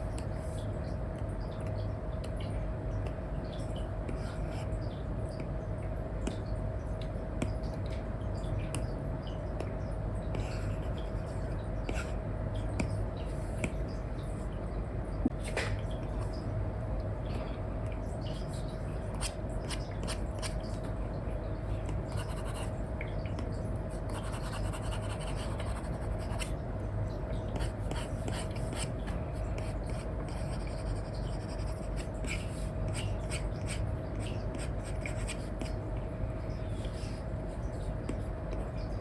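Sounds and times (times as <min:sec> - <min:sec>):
faint hum: 0:00.0 - 0:39.0
stylus scratching and tapping screen: 0:24.0 - 0:26.5.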